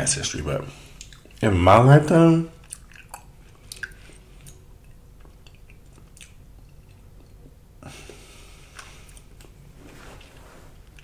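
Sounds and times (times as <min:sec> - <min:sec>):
close-miked chewing: 0:00.9 - 0:01.5, 0:02.5 - 0:07.6
wet mouth clicks: 0:02.6 - 0:07.4.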